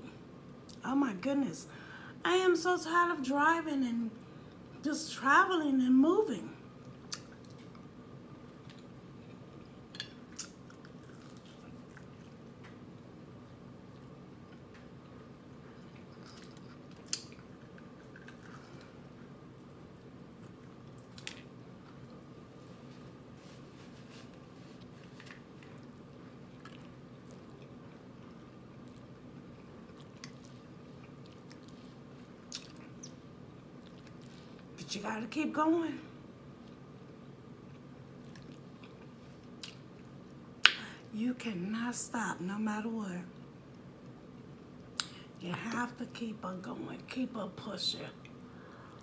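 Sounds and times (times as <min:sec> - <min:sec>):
steady low hum: 0:00.0 - 0:49.0
person chewing food: 0:06.8 - 0:34.8, 0:37.6 - 0:40.2
sharp mouth clicks: 0:40.6 - 0:40.9, 0:45.0 - 0:45.2.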